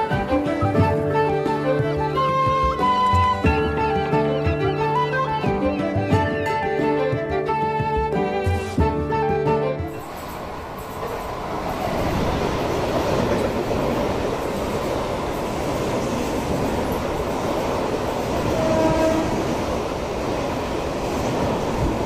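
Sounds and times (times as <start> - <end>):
electric train rushing past: 9.9 - 22.0.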